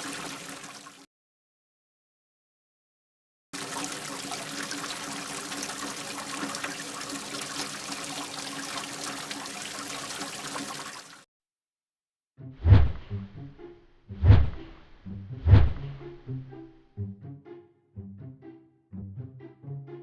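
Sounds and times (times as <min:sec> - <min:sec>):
water trickling and pouring: 0:00.0 - 0:01.1, 0:03.6 - 0:11.3.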